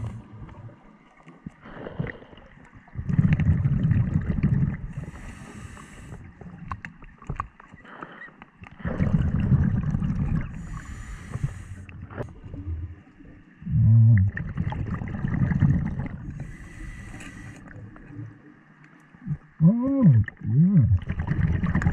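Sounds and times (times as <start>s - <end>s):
exhaled bubbles rumbling: 0.0s - 5.4s, 8.7s - 16.8s, 19.2s - 21.9s
regulator inhalation hiss: 5.0s - 6.2s, 10.6s - 11.8s, 16.4s - 17.6s.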